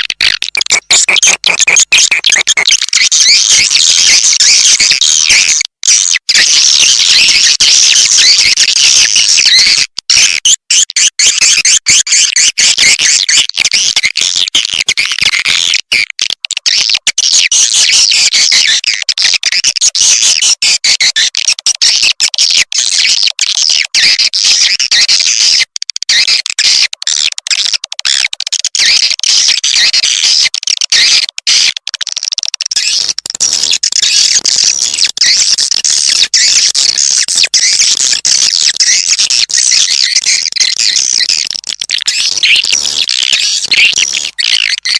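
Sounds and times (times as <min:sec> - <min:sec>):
swiftlet chirps chorus: 0:00.0 - 0:04.3.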